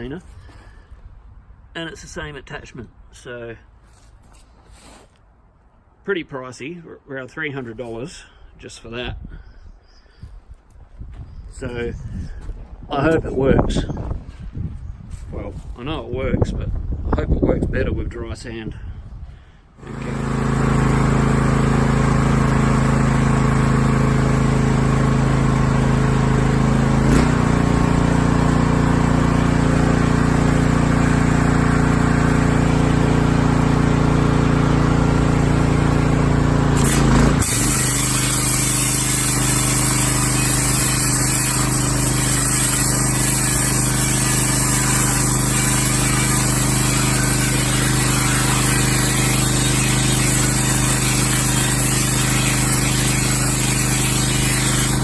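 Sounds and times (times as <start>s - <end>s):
pressure washer running: 19.8s - 55.0s
high hiss of spray: 37.4s - 55.0s.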